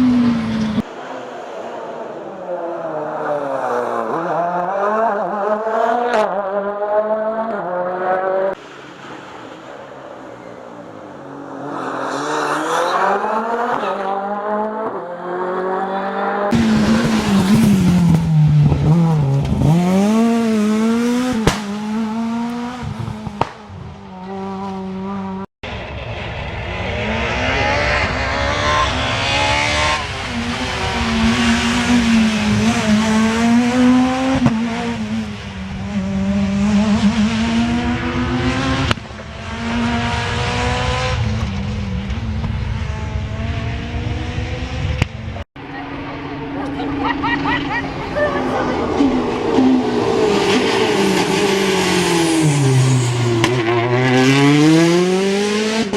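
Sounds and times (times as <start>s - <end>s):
rally car engines revving: 0.0s - 55.9s.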